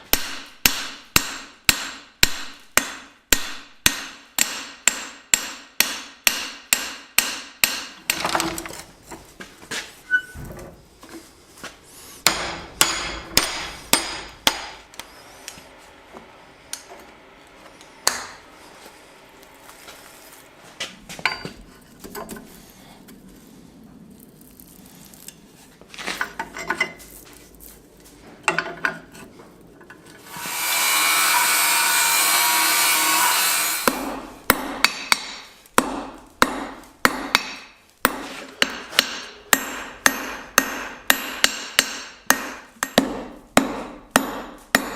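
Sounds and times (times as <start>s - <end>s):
hammer striking steel on anvil: 0.0s - 8.2s, 12.2s - 14.8s, 18.0s - 18.5s, 21.2s - 21.6s, 33.8s - 44.9s.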